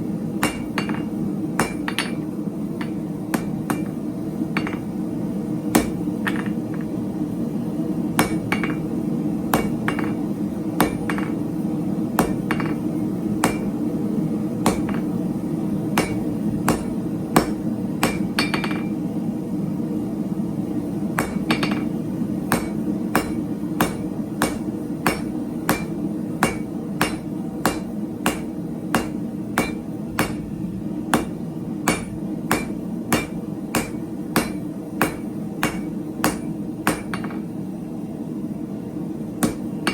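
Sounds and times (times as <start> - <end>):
hammer striking steel on anvil: 0.4 - 5.0, 5.7 - 6.9, 8.2 - 8.9, 9.5 - 10.2, 10.8 - 11.4, 12.2 - 13.8, 14.6 - 15.2, 15.9 - 19.0, 21.2 - 37.5, 39.4 - 39.9.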